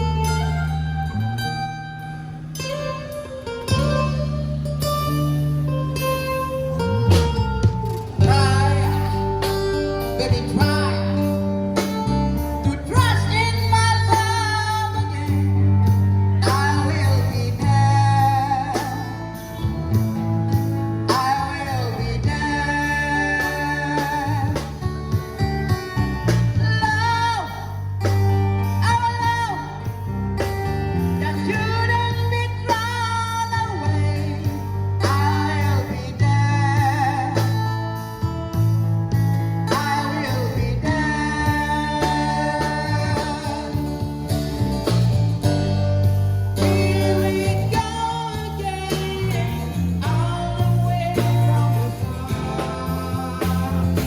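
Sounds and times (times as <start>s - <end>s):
guitar and bass band: 0.0s - 54.0s
man singing long notes: 8.2s - 25.4s, 31.0s - 37.8s, 39.6s - 44.4s, 46.6s - 54.0s.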